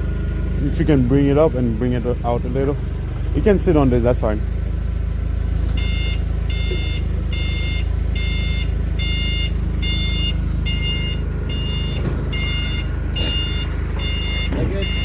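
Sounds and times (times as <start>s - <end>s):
low engine rumble: 0.0s - 15.0s
back-up alarm beeping: 5.7s - 15.0s.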